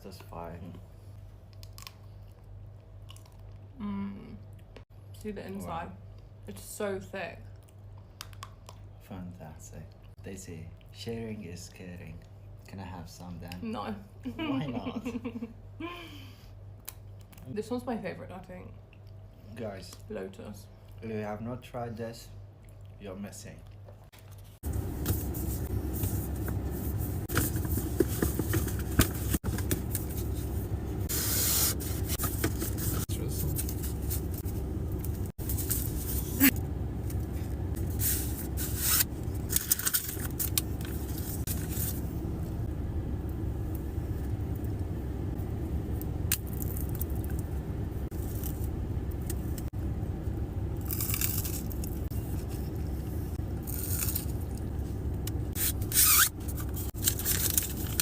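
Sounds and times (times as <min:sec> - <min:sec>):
steady low hum: 0:00.0 - 0:58.0
chewing and crunching chocolate: 0:01.5 - 0:03.8, 0:50.8 - 0:52.6.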